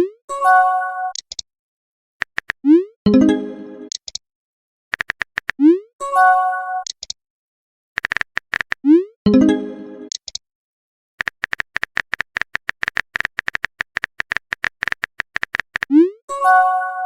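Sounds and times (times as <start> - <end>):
phone typing clicks: 2.2 - 2.6, 4.9 - 5.6, 8.0 - 8.8, 11.2 - 15.9.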